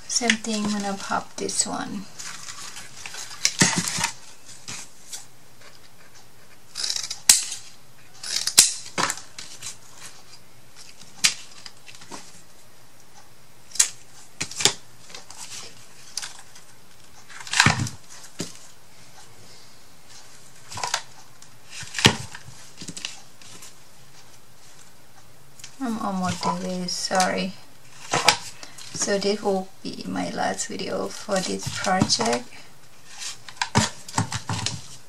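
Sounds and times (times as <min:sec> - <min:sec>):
paper rustling: 0:02.0 - 0:06.2, 0:31.0 - 0:35.0.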